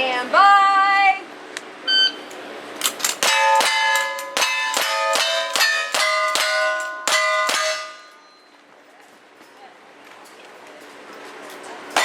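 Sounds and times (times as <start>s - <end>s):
steel plates ringing: 2.8s - 8.5s.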